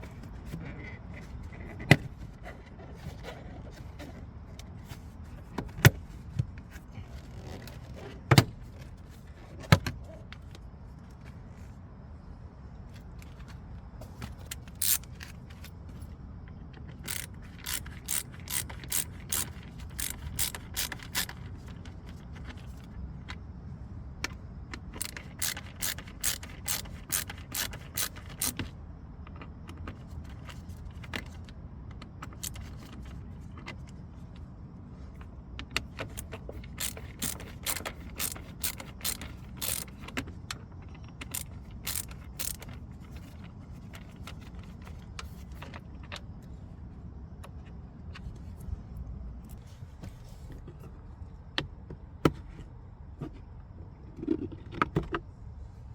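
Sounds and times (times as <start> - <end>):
ratchet clicking: 14.5 - 15.4, 17.0 - 21.7, 24.8 - 28.7, 36.0 - 40.2, 41.2 - 43.5.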